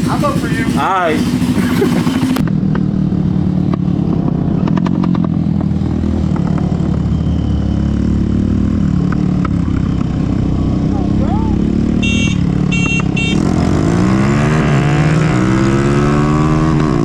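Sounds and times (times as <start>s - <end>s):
small engines idling: 0.0s - 2.4s.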